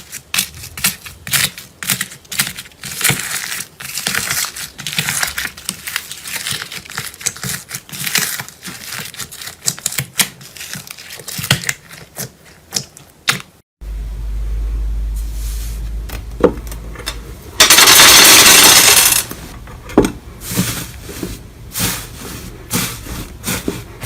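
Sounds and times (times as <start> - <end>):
steady low hum: 13.8 - 24.0.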